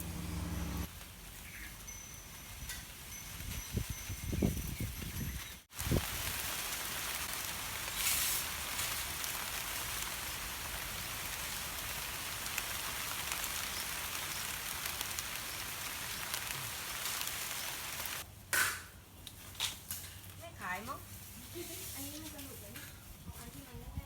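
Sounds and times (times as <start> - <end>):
wind rushing through foliage: 0.0 - 18.3, 20.3 - 24.0
wind rumble on microphone: 2.4 - 6.5, 23.2 - 24.0.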